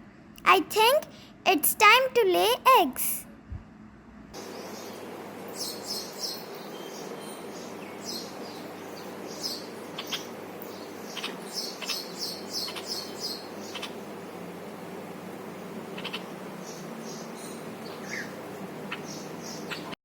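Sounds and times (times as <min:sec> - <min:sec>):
small birds chirping: 0:04.4 - 0:14.7, 0:15.4 - 0:20.0.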